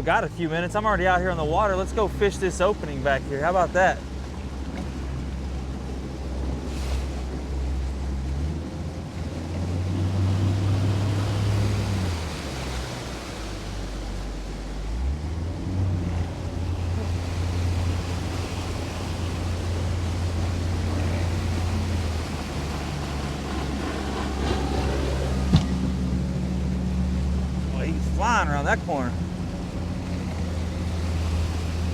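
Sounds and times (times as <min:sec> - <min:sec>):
boat motor running: 0:00.0 - 0:31.9
water rushing: 0:00.0 - 0:31.9.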